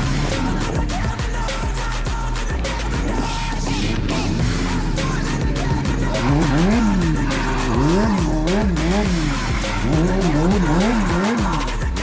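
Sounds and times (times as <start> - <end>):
motorcycle engine revving: 0.0 - 12.0
music playing: 0.0 - 12.0.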